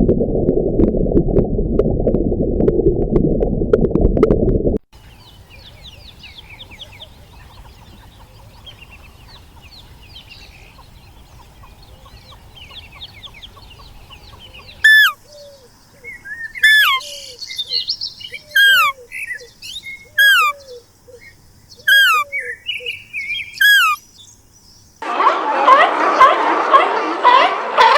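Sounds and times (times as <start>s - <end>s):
low rumble: 0.0s - 4.8s
small birds chirping faintly: 5.0s - 25.0s
sharp falling whistle bird call: 14.9s - 15.2s, 16.6s - 17.0s, 18.6s - 19.0s, 20.2s - 20.6s, 21.9s - 22.3s, 23.6s - 24.0s.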